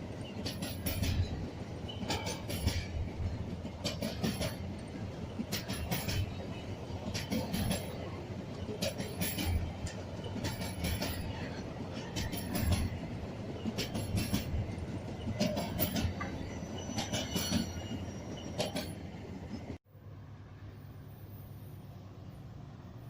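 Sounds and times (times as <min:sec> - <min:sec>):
train wheels clattering: 0:00.0 - 0:19.7
faint high wheel squeal: 0:14.5 - 0:19.8, 0:20.8 - 0:22.4.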